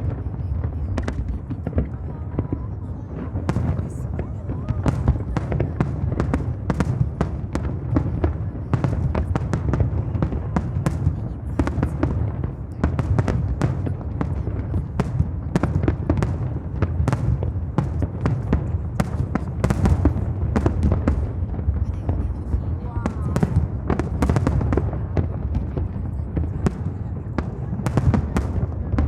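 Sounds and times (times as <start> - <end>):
fireworks crackling and popping: 0.0 - 29.0
low rumble of bursting shells: 0.0 - 29.0.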